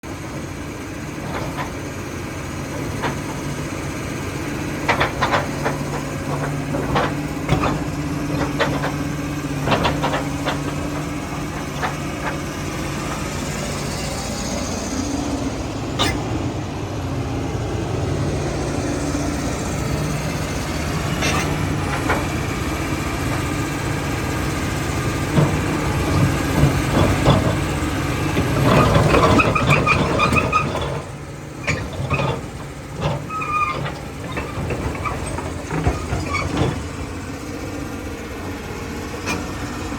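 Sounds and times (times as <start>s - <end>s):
excavator diesel engine running: 0.0s - 39.9s
metal clanks and knocks: 1.2s - 1.8s, 4.7s - 13.5s, 20.4s - 23.6s, 25.3s - 37.1s.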